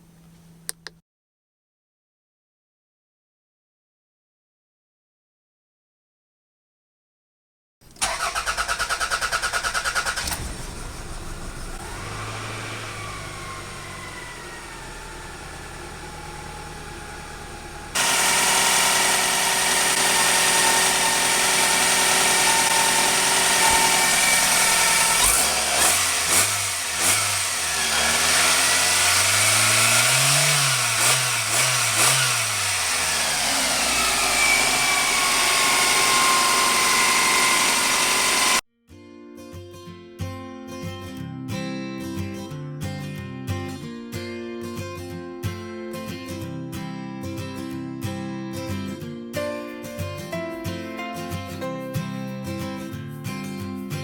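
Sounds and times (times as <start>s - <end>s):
car engine starting and idling: 8.0s - 38.6s
car engine revving: 8.1s - 38.6s.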